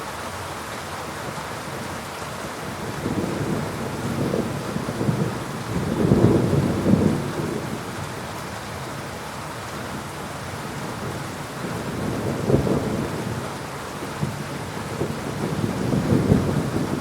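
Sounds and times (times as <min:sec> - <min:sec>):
heavy rain falling: 0:00.0 - 0:17.0
thunder rumbling: 0:02.8 - 0:08.0, 0:10.8 - 0:13.5, 0:14.2 - 0:17.0.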